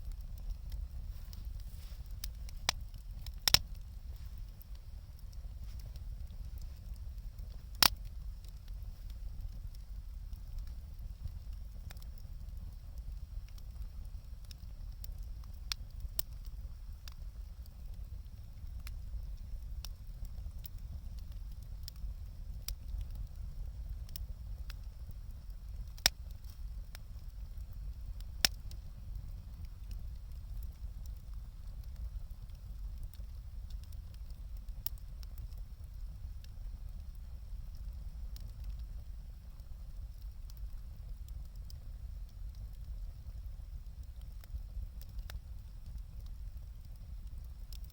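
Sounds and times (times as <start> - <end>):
loud fire pops: 0.0 - 9.8
wood fire crackling: 0.0 - 47.9.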